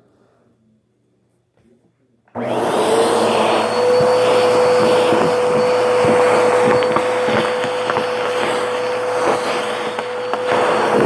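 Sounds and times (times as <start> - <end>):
vacuum cleaner motor whine: 2.3 - 11.0.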